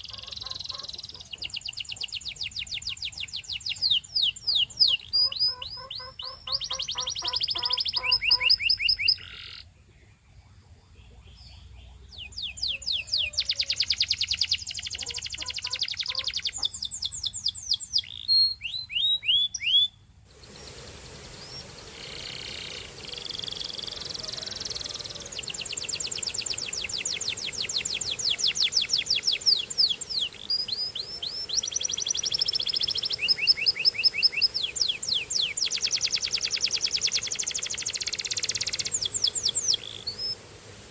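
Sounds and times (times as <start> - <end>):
canary singing trills: 0.0 - 40.4
steady hiss: 20.0 - 40.9.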